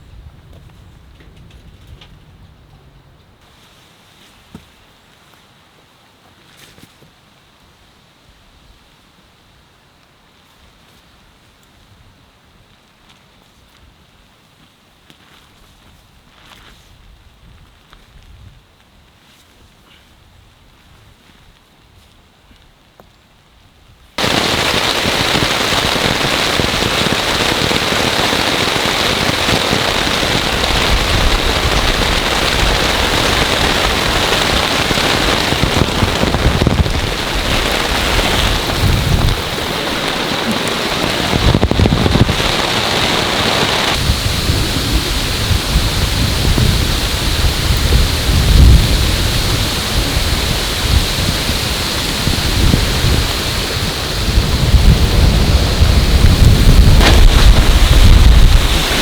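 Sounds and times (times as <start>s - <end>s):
heavy rain falling: 24.2s - 59.0s
low thunder rumbles: 24.2s - 59.0s.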